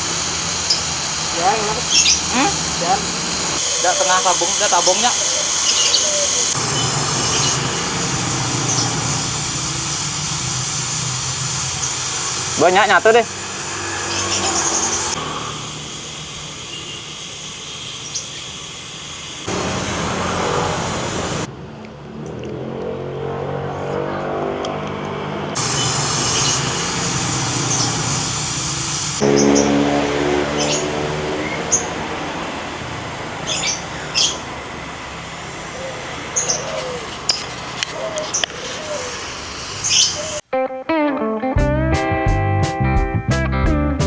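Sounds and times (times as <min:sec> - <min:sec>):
gas welding torch hissing: 0:00.0 - 0:21.5, 0:25.6 - 0:40.4
engine hum: 0:00.0 - 0:40.4
small birds chirping: 0:00.4 - 0:15.5, 0:16.4 - 0:21.5, 0:25.6 - 0:40.4.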